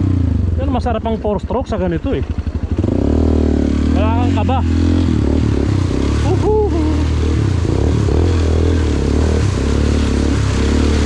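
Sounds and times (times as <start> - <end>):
dirt bike engine running: 0.0 - 11.0
water splashing: 5.4 - 11.0
short voice sound: 6.2 - 7.2.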